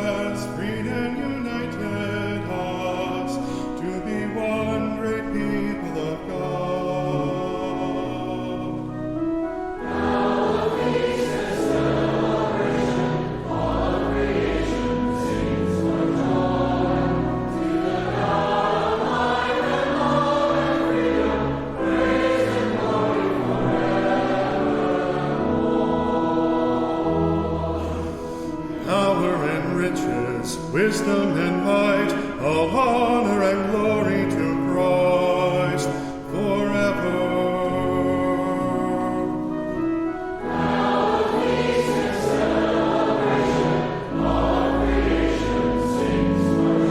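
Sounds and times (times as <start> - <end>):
congregation singing a hymn: 0.0 - 46.9
instrumental accompaniment: 0.0 - 46.9.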